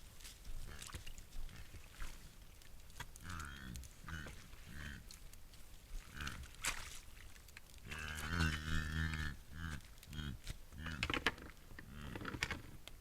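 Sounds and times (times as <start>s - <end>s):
wild boar grunting: 3.2s - 5.1s, 6.0s - 6.6s, 7.8s - 11.2s, 11.8s - 12.4s.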